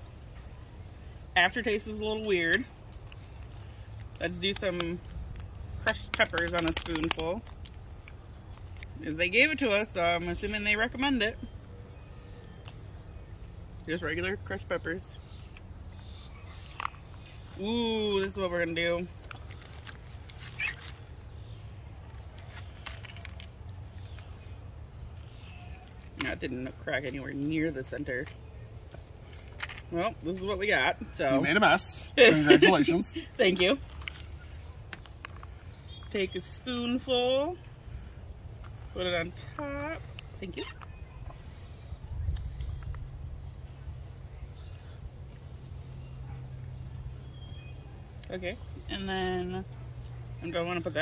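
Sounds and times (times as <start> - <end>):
faint insect chirr: 0.0 - 51.0
dry food snapping: 2.5 - 9.0.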